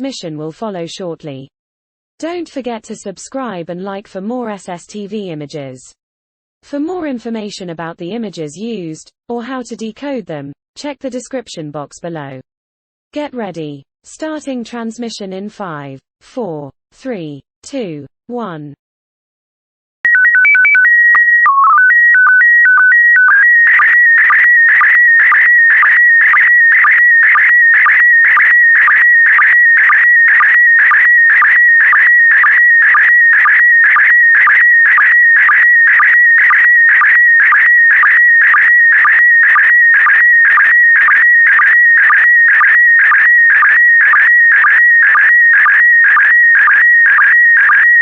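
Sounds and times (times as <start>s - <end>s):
pulsed warbling signal tone: 20.1s - 48.0s
stepped beeping tones: 20.1s - 48.0s.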